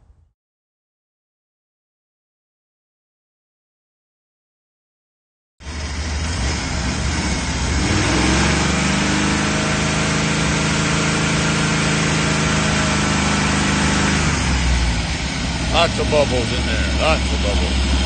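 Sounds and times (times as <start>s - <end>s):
van engine idling: 5.6s - 18.0s.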